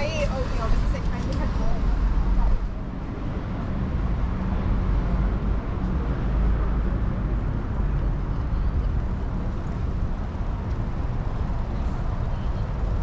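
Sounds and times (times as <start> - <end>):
city street traffic rumble: 0.0 - 13.0.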